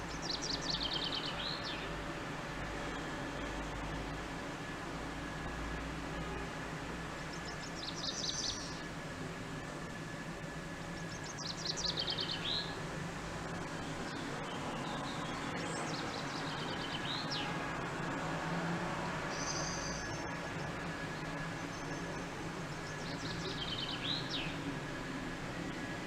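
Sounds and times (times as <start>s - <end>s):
small songbird singing: 0.1s - 1.9s, 7.3s - 8.8s, 11.0s - 12.8s, 13.8s - 17.6s, 19.3s - 22.2s, 22.8s - 24.7s.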